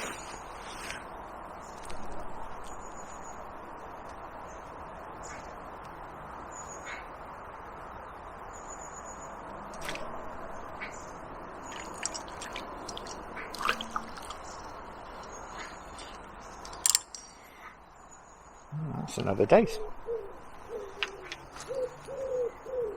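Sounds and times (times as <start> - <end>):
water drips and small splashes: 9.6 - 17.2.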